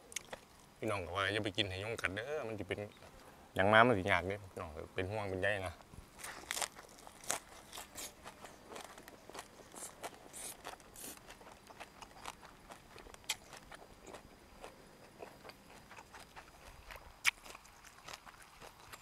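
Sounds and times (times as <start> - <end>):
chewing crunchy food: 0.0 - 0.7, 6.2 - 19.0.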